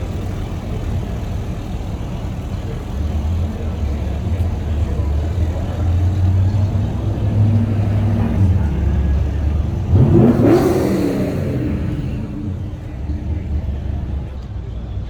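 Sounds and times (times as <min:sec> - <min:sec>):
car engine revving: 0:02.8 - 0:14.5.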